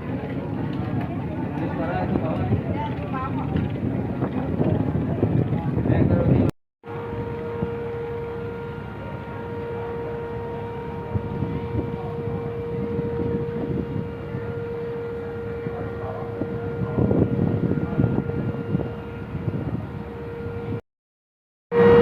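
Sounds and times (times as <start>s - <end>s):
truck engine whine and rumble: 6.9s - 20.8s, 21.7s - 22.0s.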